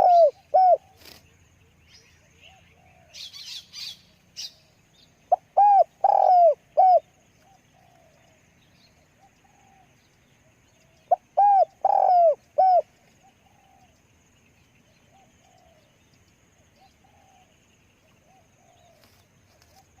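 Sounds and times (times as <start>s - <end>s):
dove cooing: 0.0s - 1.2s, 5.3s - 8.3s, 10.8s - 13.9s.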